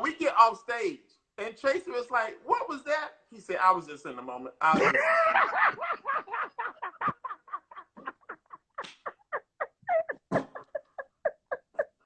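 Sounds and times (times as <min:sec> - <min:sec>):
person laughing hard: 0:04.7 - 0:12.0.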